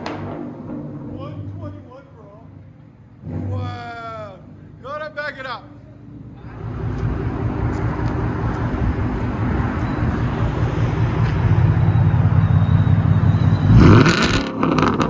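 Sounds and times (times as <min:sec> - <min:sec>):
car engine rumbling: 0:00.0 - 0:15.0
engine revving: 0:03.2 - 0:04.4, 0:06.4 - 0:15.0.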